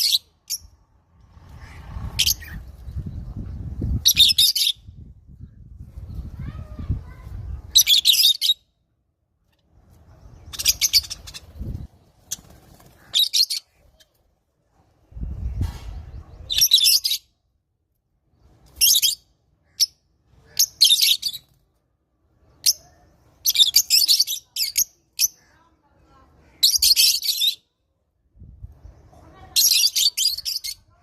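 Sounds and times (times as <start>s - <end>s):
lovebirds screeching: 1.3s - 3.4s, 10.4s - 13.8s.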